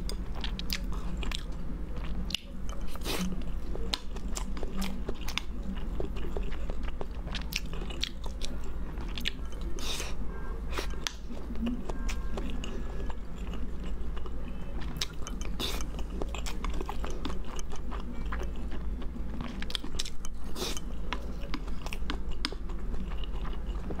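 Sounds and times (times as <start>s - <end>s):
close chewing and biting: 0.0s - 24.0s.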